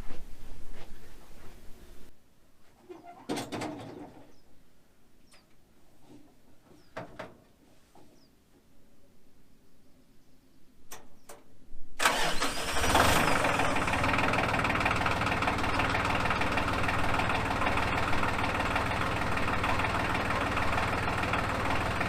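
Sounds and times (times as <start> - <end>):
starter motor cranking: 12.0 - 14.4
tractor engine idling: 12.0 - 22.0.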